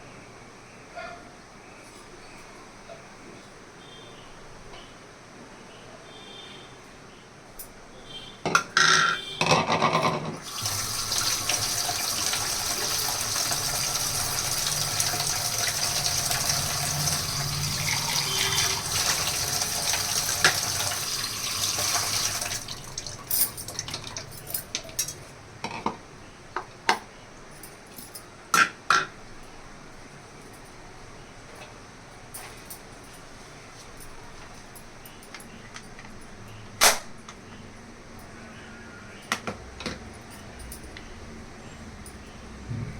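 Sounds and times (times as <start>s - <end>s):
kitchenware clinking and knocking: 8.5s - 10.8s
tap running into sink: 10.4s - 25.1s.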